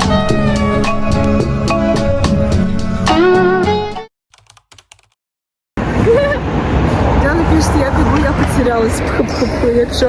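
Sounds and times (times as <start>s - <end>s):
music: 0.0s - 4.1s
outdoor voices: 5.8s - 10.0s.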